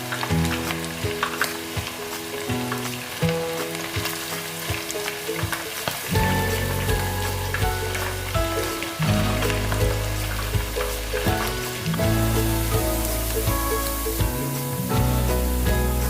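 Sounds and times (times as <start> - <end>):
background music: 0.0 - 16.0
food frying in hot oil: 0.0 - 16.0.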